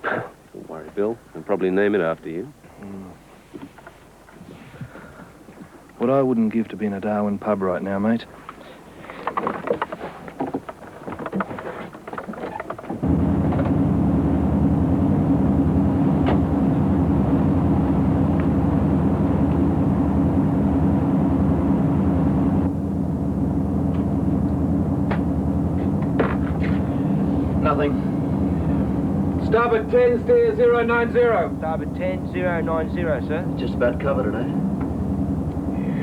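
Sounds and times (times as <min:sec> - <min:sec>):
boat engines droning: 0:12.8 - 0:36.0.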